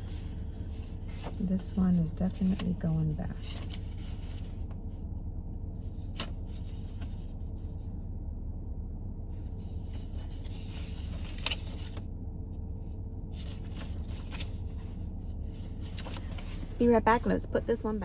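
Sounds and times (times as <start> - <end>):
rustling and handling noises: 0.0 - 4.8, 6.0 - 7.6, 9.5 - 12.0, 13.3 - 18.0
steady low hum: 0.0 - 18.0.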